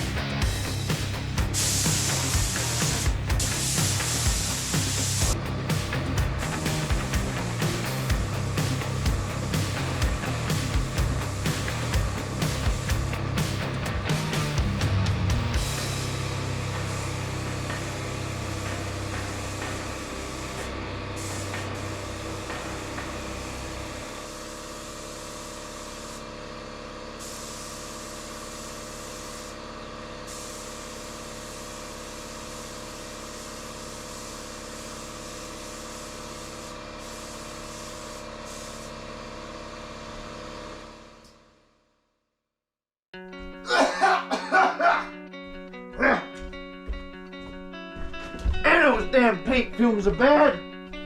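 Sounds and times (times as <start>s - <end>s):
machine hum: 0.0s - 27.0s
paint spray gun hissing: 0.0s - 29.6s, 30.2s - 39.3s.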